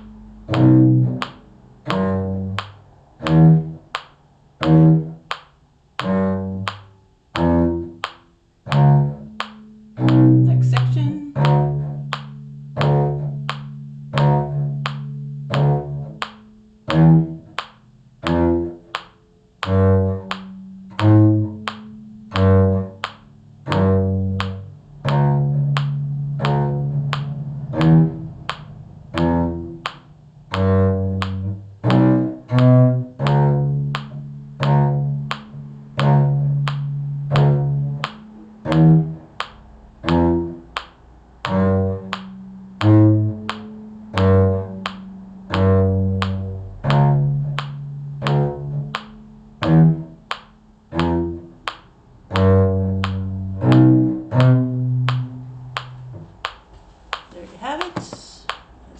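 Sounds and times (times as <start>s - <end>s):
cello bowing long notes: 0.0s - 5.4s, 6.0s - 56.5s
short sharp beat notes: 10.0s - 12.3s.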